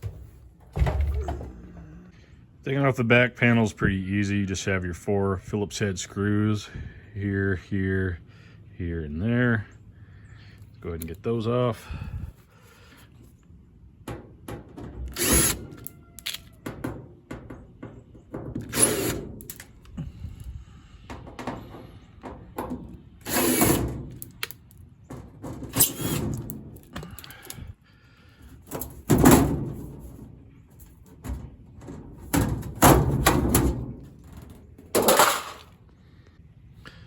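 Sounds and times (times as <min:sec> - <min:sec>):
sheet metal knocking and rattling: 0:00.0 - 0:02.0, 0:14.0 - 0:15.2, 0:16.6 - 0:19.4, 0:21.0 - 0:23.1, 0:28.7 - 0:35.6.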